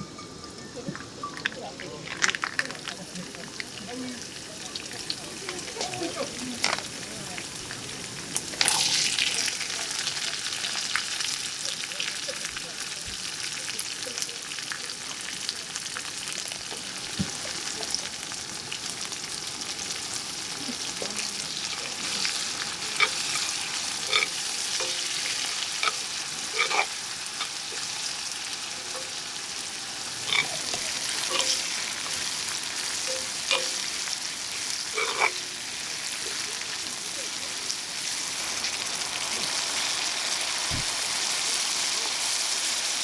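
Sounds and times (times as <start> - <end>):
utensil clinking against pan: 0.0 - 3.8, 21.8 - 27.9, 30.2 - 34.2
food sizzling in a pan: 0.0 - 43.0.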